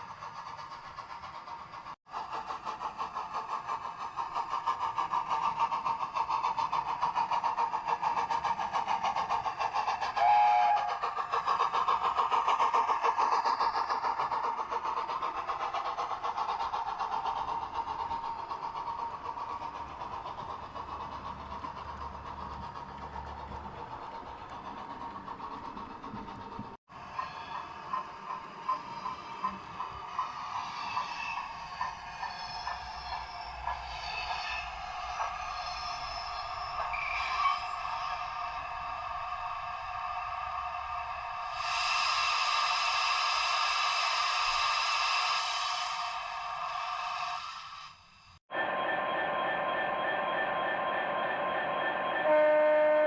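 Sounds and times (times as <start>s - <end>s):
model train clattering on track: 0.0s - 37.0s
toy locomotive whistle toot: 10.2s - 11.0s, 48.5s - 53.0s.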